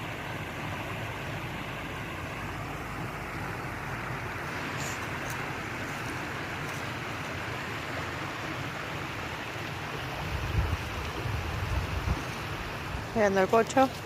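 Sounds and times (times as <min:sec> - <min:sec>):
flowing stream water: 0:00.0 - 0:14.0.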